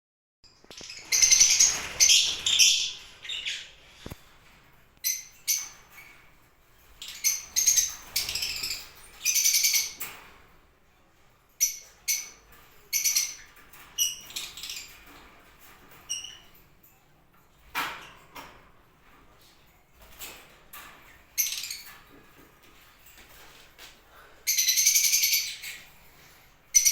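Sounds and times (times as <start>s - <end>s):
birds shrill calls: 0.5s - 4.2s, 24.4s - 26.9s.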